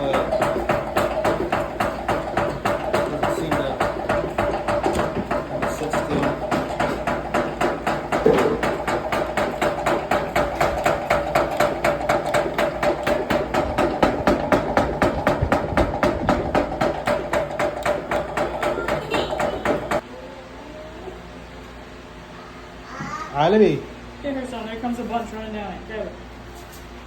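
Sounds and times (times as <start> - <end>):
honey extractor spinning: 0.0 - 20.0
rhythmic knocking: 0.0 - 20.0.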